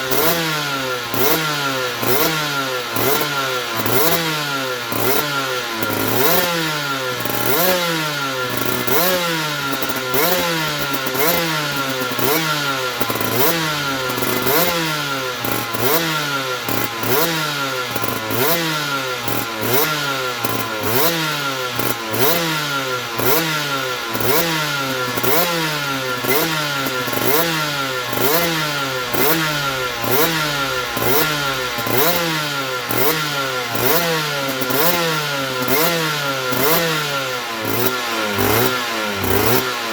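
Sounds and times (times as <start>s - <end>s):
two-stroke engine revving: 0.0s - 39.9s
steady high whine: 27.7s - 33.8s.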